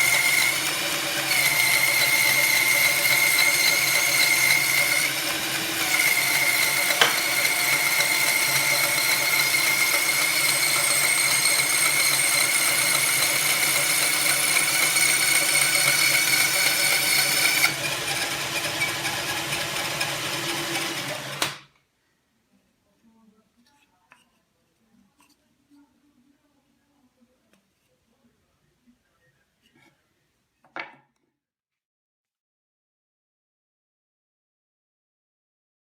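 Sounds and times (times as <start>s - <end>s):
band saw running with high whine: 0.0s - 21.6s.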